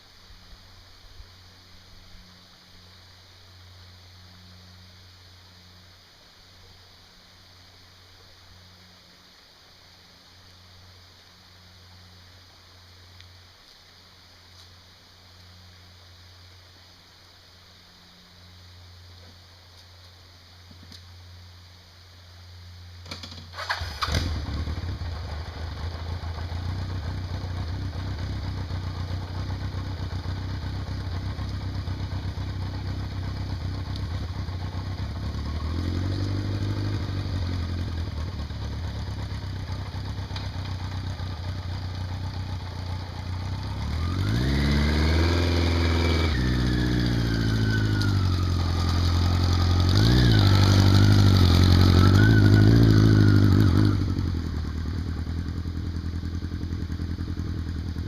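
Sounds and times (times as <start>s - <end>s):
vehicle engine running: 20.5s - 58.0s
engine whine rising and falling: 23.6s - 58.0s.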